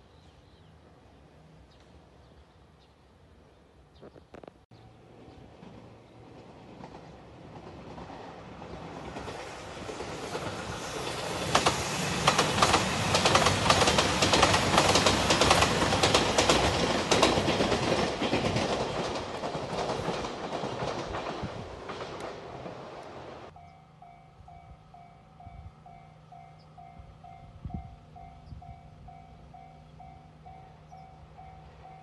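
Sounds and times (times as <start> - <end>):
train wheels clattering over rail joints: 5.6 - 23.3.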